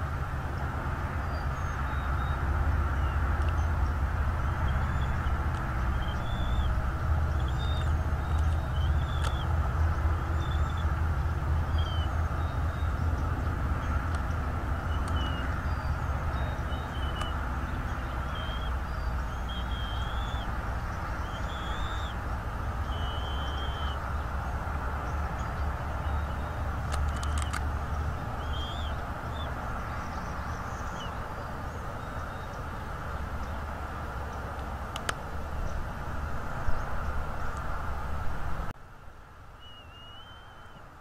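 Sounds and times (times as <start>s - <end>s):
low rumble and hiss: 0.0s - 41.0s
high bird calls: 1.2s - 33.6s, 39.6s - 40.9s
sharp clicks: 7.8s - 9.5s, 17.1s - 17.4s, 26.8s - 28.0s, 34.5s - 35.2s.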